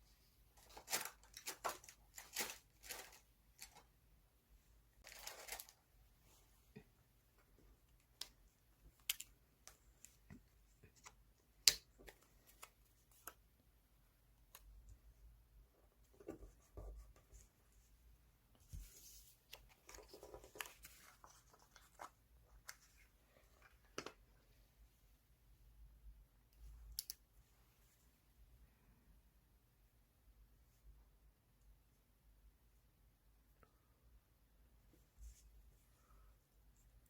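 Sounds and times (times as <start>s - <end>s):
paper rustling: 0.6s - 3.9s, 5.0s - 5.8s, 18.6s - 24.1s.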